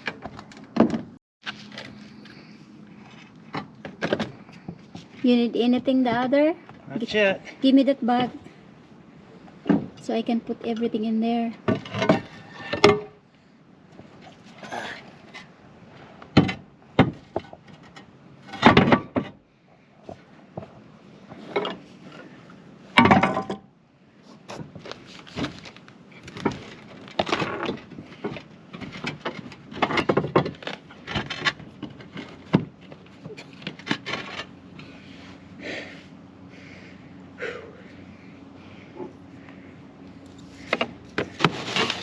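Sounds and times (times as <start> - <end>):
tools and roofing materials clattering: 0.0 - 5.1, 11.6 - 13.2, 16.3 - 19.4, 20.0 - 23.7, 24.5 - 34.9, 40.4 - 42.0.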